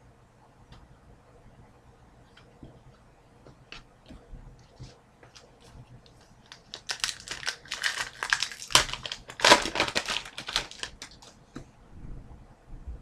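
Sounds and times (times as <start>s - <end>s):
plastic wrapper crinkling: 4.8s - 11.4s.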